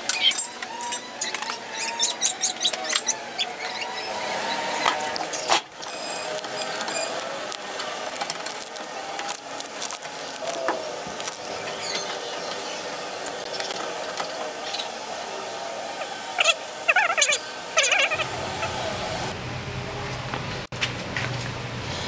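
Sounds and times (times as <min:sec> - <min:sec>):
short squeaks: 0:00.1 - 0:10.7
screwdriver and parts rattling: 0:04.8 - 0:12.1.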